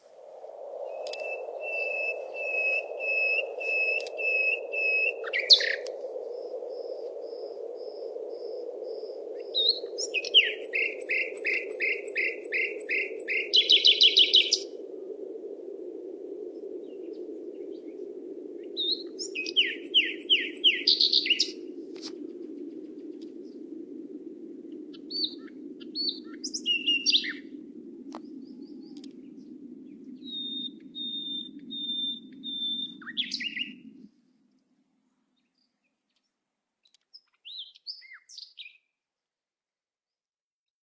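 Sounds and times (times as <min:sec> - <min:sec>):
songbirds singing: 0:00.8 - 0:14.8, 0:16.8 - 0:21.7, 0:24.9 - 0:34.1, 0:35.1 - 0:38.9.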